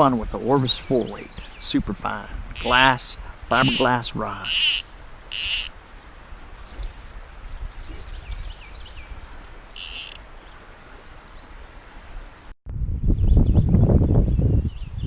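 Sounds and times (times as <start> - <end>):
rumbling and rustling near microphone: 0.0 - 11.5
wind rumbling: 0.0 - 15.0
high buzzy animal call: 2.3 - 5.7, 9.7 - 10.2.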